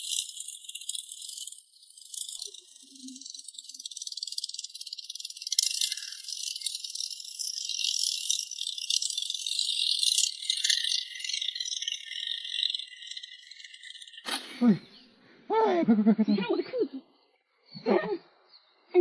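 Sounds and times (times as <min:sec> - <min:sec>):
high-pitched rattling buzz: 0:00.0 - 0:14.5.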